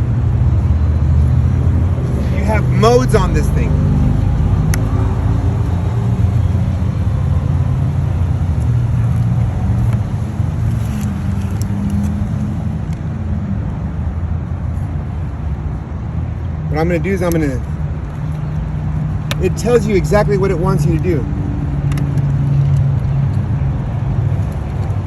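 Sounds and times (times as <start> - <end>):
motor vehicle engine rumble: 0.0 - 12.9.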